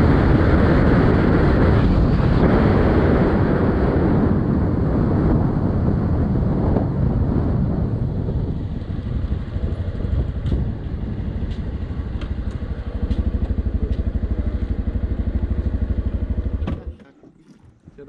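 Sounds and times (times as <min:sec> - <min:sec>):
motorcycle engine idling: 0:08.4 - 0:17.1.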